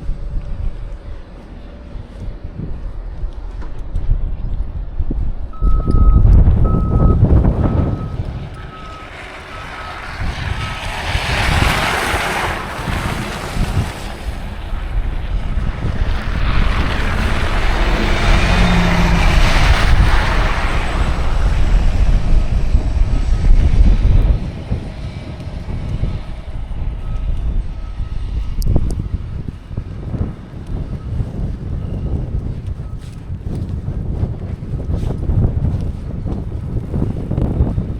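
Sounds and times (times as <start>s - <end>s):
wind buffeting microphone: 0.0s - 37.9s
tyres hissing on snowy street: 8.1s - 23.1s.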